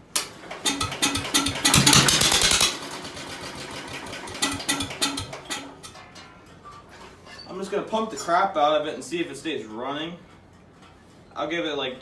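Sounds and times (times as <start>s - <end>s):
engine running roughly: 0.4s - 5.9s.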